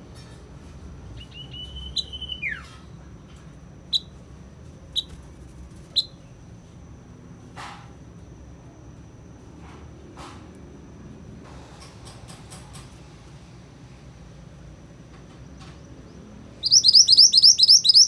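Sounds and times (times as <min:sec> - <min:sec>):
songbird singing: 0:01.1 - 0:02.9, 0:03.8 - 0:04.2, 0:04.9 - 0:06.4, 0:15.3 - 0:18.0.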